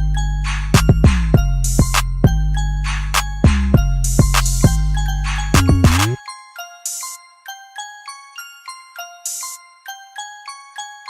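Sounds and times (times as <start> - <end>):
deep sliding bass: 0.0 - 6.2
bell-like mallet melody: 0.0 - 11.0.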